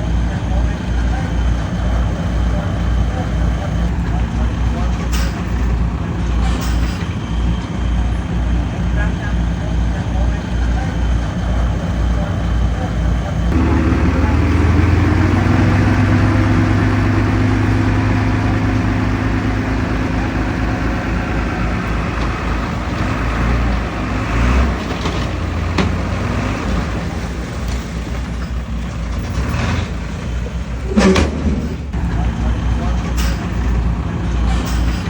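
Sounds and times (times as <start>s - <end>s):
heavy diesel engine running: 0.0s - 35.0s.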